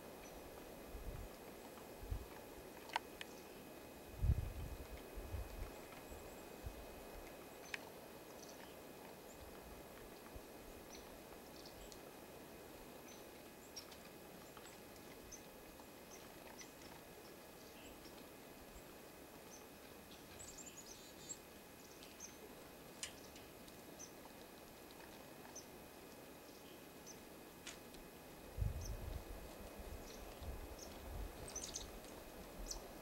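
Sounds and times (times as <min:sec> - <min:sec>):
low outdoor hiss: 0:00.0 - 0:33.0
songbird chip notes: 0:28.5 - 0:33.0.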